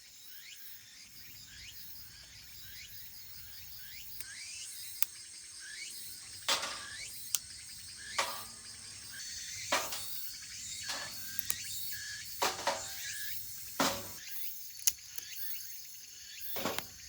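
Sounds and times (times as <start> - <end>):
insects chirping: 0.0 - 17.0
firewood burning and crackling: 6.5 - 14.2
sharp pops of fire: 6.5 - 14.2, 16.5 - 17.0.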